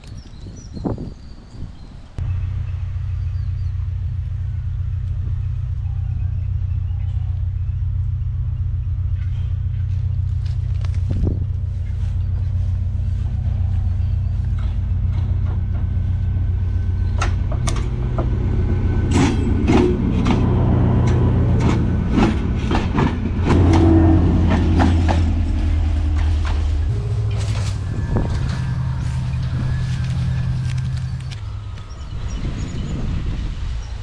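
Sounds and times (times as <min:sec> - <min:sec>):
train rumbling past: 0:02.0 - 0:34.0
wheels clacking on rail: 0:09.0 - 0:32.1.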